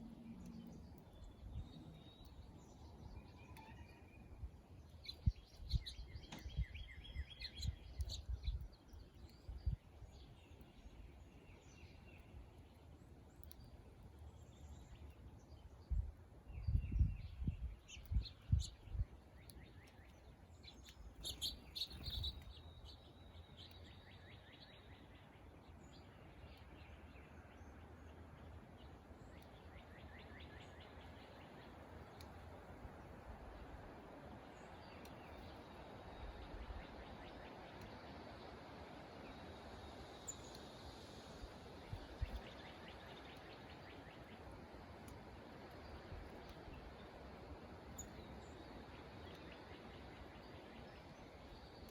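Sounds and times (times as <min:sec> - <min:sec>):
songbirds trilling: 0:16.7 - 0:51.9.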